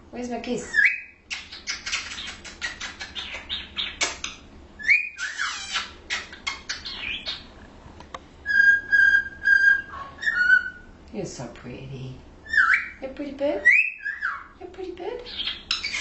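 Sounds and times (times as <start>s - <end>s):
cockatiel chirping and warbling: 0.7s - 7.5s, 8.5s - 10.9s, 12.4s - 13.0s, 13.6s - 14.6s, 15.3s - 16.0s
cockatiel whistle: 4.8s - 5.9s, 8.5s - 10.9s.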